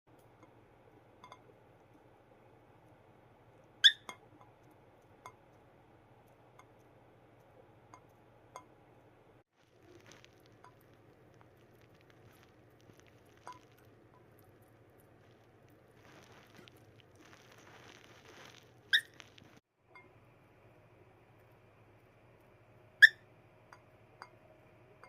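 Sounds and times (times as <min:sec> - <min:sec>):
bird beak pecking and nibbling: 0:09.6 - 0:19.6.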